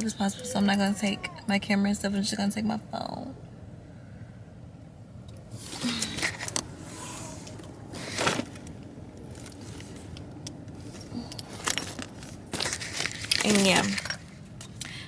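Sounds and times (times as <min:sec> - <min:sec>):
rustling: 0:05.5 - 0:14.8.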